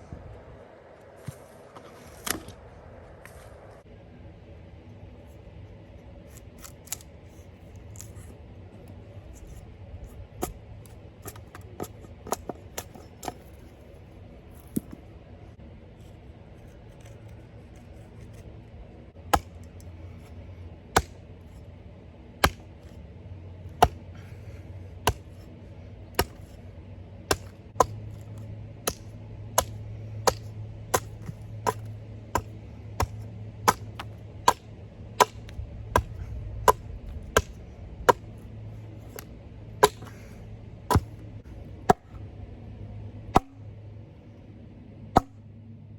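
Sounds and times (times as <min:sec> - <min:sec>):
low steady hum: 0:00.0 - 0:45.9
hand tool chopping wood: 0:06.6 - 0:07.0, 0:11.2 - 0:13.4, 0:19.2 - 0:19.9, 0:21.0 - 0:21.2, 0:22.4 - 0:22.9, 0:23.8 - 0:24.4, 0:25.0 - 0:25.5, 0:26.1 - 0:26.6, 0:27.3 - 0:38.4, 0:39.0 - 0:40.3, 0:40.9 - 0:41.2, 0:41.9 - 0:42.1, 0:43.3 - 0:43.5, 0:45.2 - 0:45.4.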